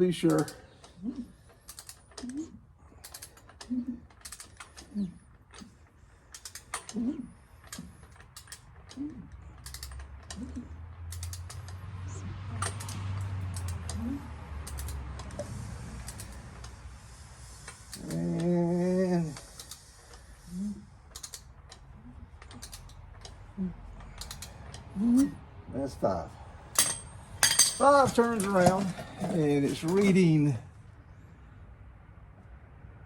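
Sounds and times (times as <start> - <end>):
short creaks: 0.2 - 18.5, 19.2 - 25.4
ratchet wrench clicks: 9.6 - 11.8, 14.6 - 16.8, 21.1 - 21.8.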